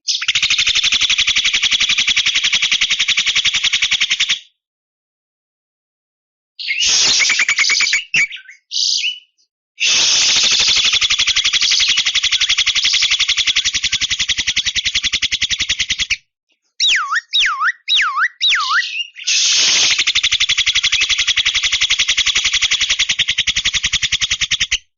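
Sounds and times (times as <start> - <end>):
bird swooping whistles: 6.6 - 16.2, 16.8 - 24.8
bird buzzing rattle: 10.2 - 16.1, 19.4 - 24.8
bird rattling chatter: 10.3 - 16.2, 19.5 - 24.8.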